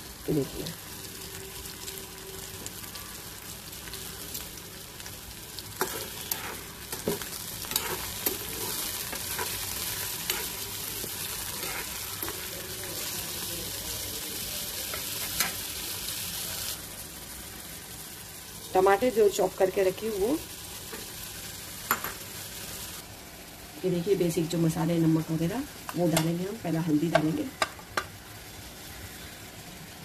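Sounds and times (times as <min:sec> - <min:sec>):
vegetables sizzling in hot oil: 0:00.0 - 0:30.0
spatula scraping a pan: 0:05.8 - 0:12.5.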